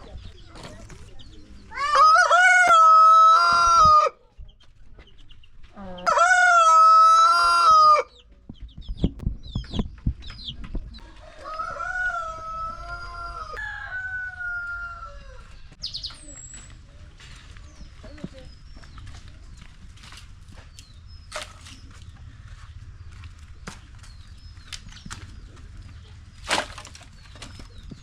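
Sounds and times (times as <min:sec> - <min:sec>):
rooster crowing: 0:01.7 - 0:04.2, 0:06.0 - 0:08.1, 0:11.0 - 0:15.5.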